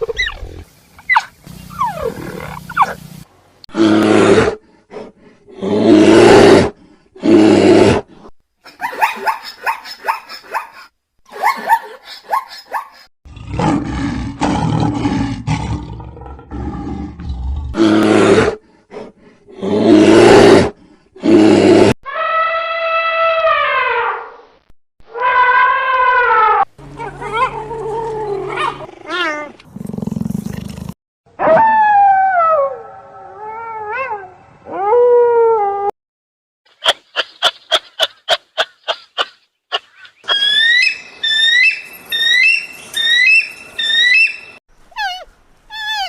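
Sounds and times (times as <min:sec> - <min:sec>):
animal roars and growls: 0:13.3 - 0:18.6, 0:19.5 - 0:24.1, 0:25.2 - 0:35.4.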